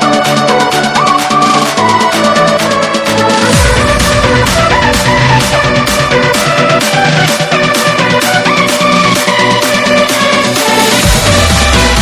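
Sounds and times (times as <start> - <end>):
upbeat electronic music: 0.0 - 12.0.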